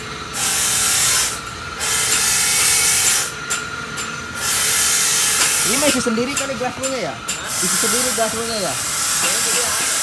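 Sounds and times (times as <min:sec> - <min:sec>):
loud hissing bursts: 0:04.4 - 0:06.0, 0:07.5 - 0:10.0.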